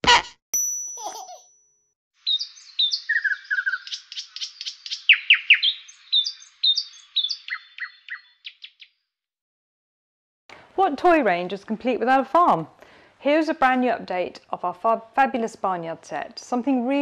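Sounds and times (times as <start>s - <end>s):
bird chirping and tweeting: 2.2s - 9.0s.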